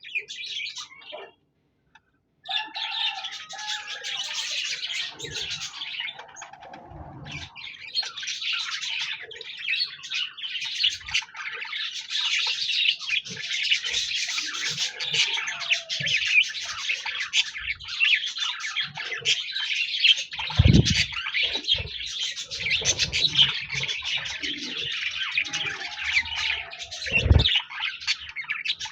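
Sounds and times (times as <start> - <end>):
budgerigars chattering: 7.3 - 28.9.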